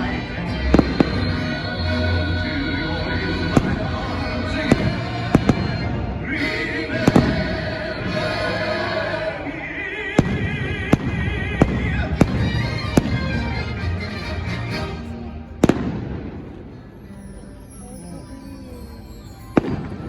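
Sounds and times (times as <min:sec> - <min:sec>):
fireworks bursting with bangs: 0:03.5 - 0:06.3, 0:07.0 - 0:07.8, 0:10.2 - 0:13.6, 0:15.6 - 0:16.8.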